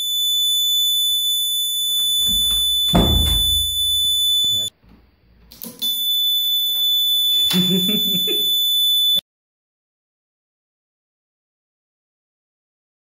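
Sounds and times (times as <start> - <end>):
high-pitched buzzer tone: 0.0 - 4.7, 5.8 - 9.2
knock: 2.3 - 3.9.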